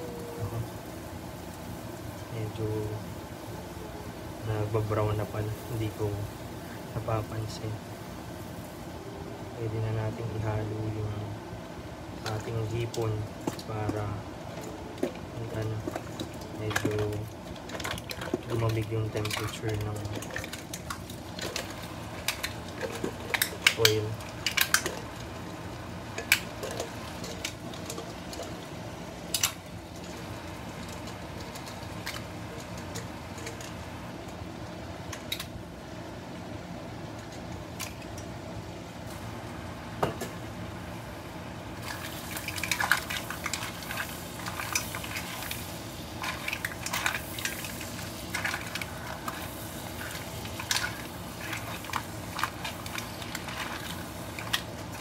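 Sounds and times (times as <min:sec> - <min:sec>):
seafood sizzling in butter: 0:12.6 - 0:35.4, 0:41.8 - 0:55.0.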